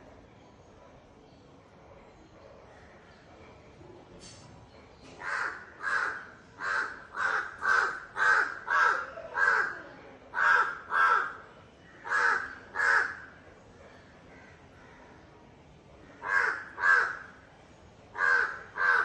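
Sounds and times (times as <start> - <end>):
crow cawing: 5.2 - 13.4, 16.1 - 17.4, 18.2 - 19.0.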